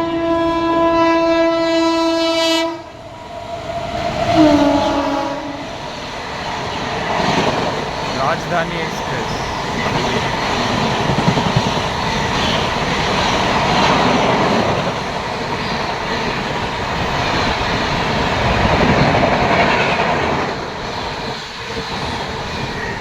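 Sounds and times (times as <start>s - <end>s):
train passing at speed: 0.0s - 23.0s.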